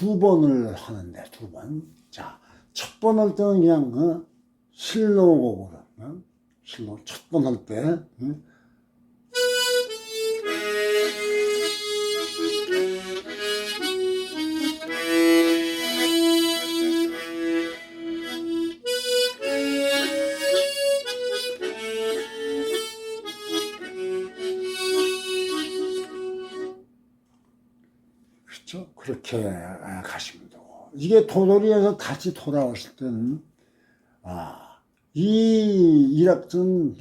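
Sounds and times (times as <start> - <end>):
harmonica playing slow melody: 9.3 - 26.9.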